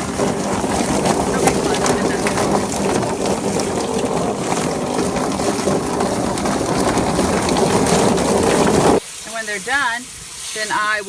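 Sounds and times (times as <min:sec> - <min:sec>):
plucking machine motor hum: 0:00.0 - 0:09.0
water splashing and churning: 0:00.0 - 0:09.0.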